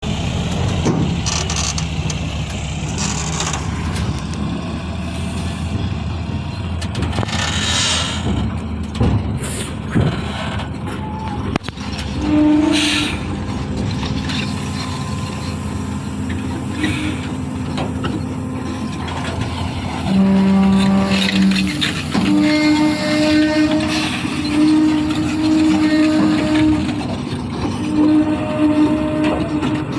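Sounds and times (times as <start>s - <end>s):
truck engine droning: 0.0s - 29.9s
loud horn-like tone: 12.2s - 13.3s, 20.0s - 27.1s, 27.8s - 29.9s.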